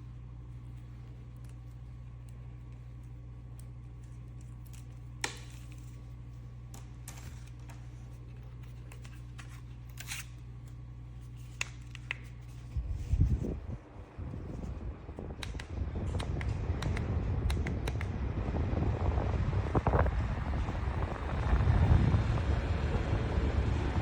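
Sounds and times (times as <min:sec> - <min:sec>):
handheld fan humming: 0:00.0 - 0:24.0
wind buffeting on microphone: 0:12.8 - 0:24.0.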